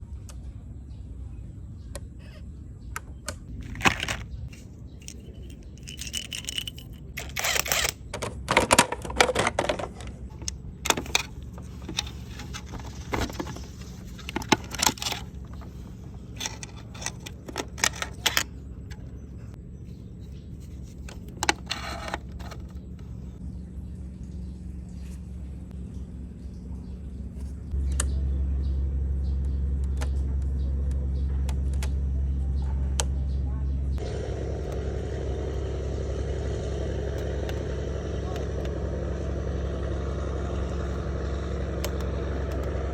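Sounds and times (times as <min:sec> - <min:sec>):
short metallic rattles: 0:03.6 - 0:10.0
motorcycle engine idling: 0:10.3 - 0:42.9.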